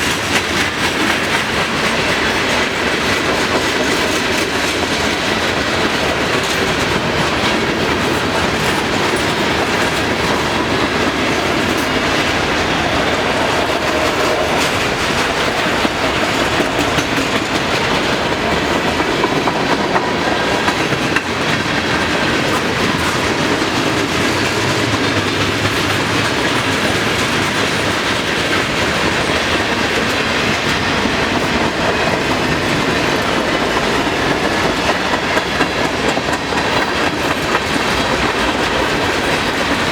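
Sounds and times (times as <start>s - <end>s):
train wheels rumbling on rail: 0.0s - 39.9s
wheels clicking over rail joints: 0.0s - 39.9s.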